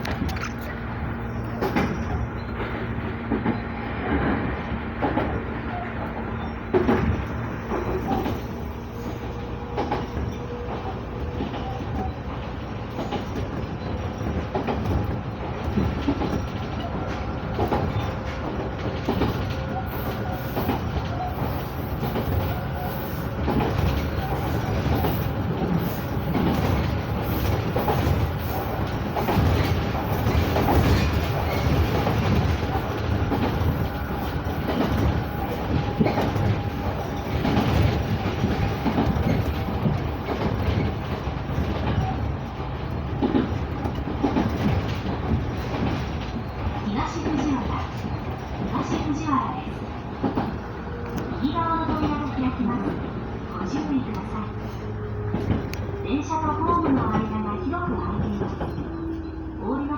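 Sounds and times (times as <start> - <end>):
clacks over rail joints: 0.0 - 59.6
train wheels rumbling on rail: 0.0 - 59.9.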